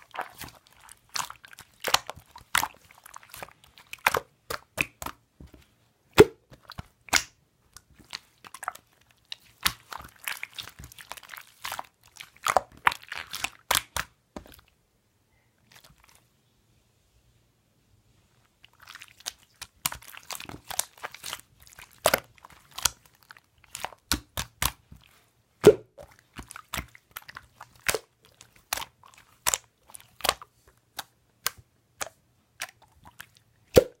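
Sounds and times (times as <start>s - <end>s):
slime squeezed wet popping: 0.0s - 5.2s, 6.1s - 14.6s, 18.7s - 34.0s.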